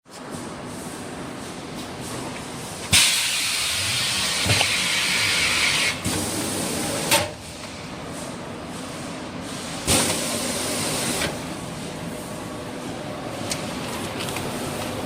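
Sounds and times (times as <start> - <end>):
loud machine hiss: 2.9 - 7.2.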